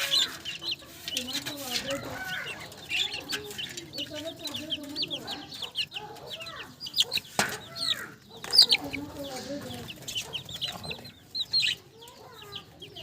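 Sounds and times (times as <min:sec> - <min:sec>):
budgerigars chattering: 0:00.0 - 0:13.0.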